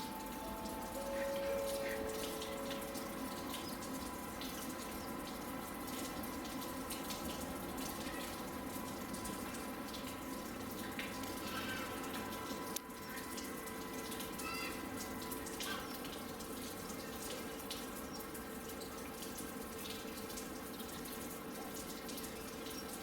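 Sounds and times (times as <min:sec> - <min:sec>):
running water rushing: 0:00.0 - 0:22.8.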